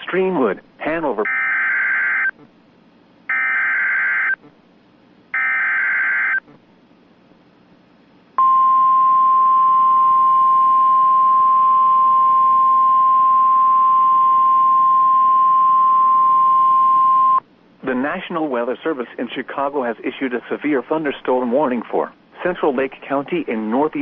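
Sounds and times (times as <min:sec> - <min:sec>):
steady alarm tone: 0:03.3 - 0:04.4, 0:05.4 - 0:06.4.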